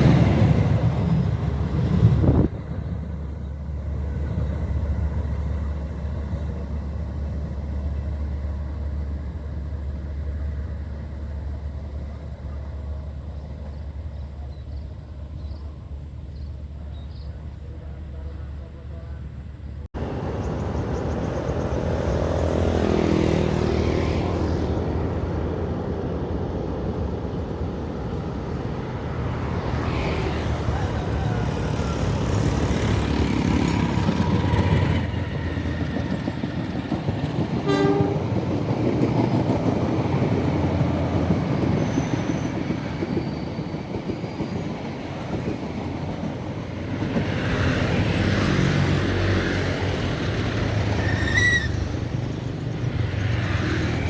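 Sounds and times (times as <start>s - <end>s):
train rumbling on rails: 0.0s - 54.0s
train horn: 37.6s - 38.4s.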